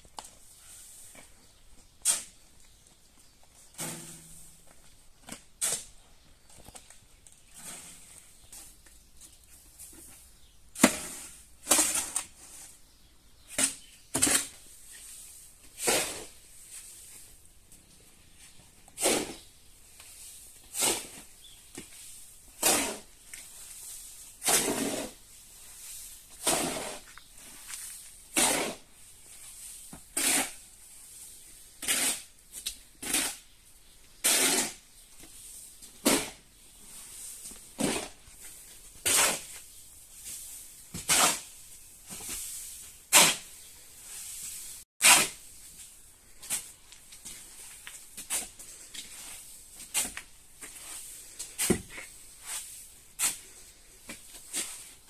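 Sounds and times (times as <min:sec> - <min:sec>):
hand tool scraping: 0:03.7 - 0:04.6, 0:10.8 - 0:12.8, 0:18.4 - 0:30.7, 0:31.8 - 0:33.5, 0:34.2 - 0:35.3, 0:36.0 - 0:45.8, 0:46.4 - 0:55.0.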